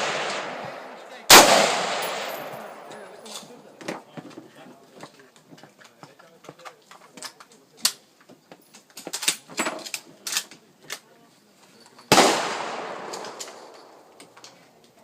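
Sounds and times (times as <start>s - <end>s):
rifle shot with echo: 0.0s - 3.2s, 12.1s - 14.2s.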